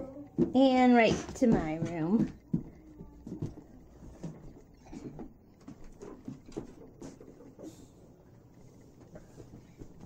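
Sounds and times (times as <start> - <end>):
toddler bumping and tapping furniture: 0.3 - 7.7.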